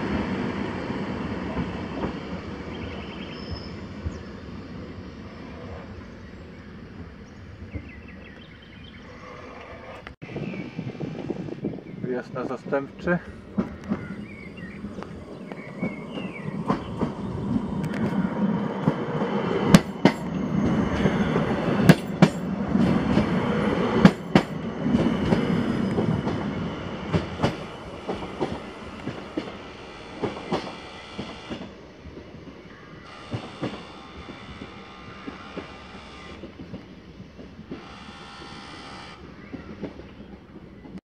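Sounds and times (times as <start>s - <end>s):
electric train pulling out: 12.4s - 40.7s
wheels clicking over rail joints: 12.4s - 41.0s.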